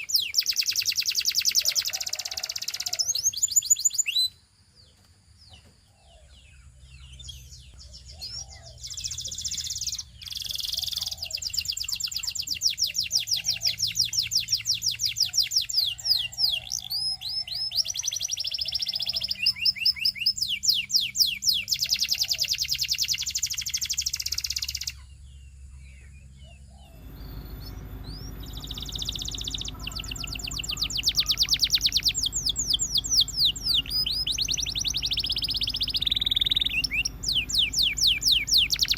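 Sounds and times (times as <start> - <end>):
canary singing trills: 0.0 - 38.9
steady low hum: 25.0 - 38.9.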